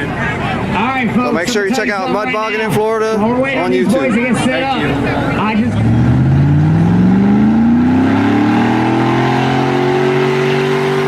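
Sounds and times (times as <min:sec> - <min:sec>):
truck engine revving: 0:04.2 - 0:11.0.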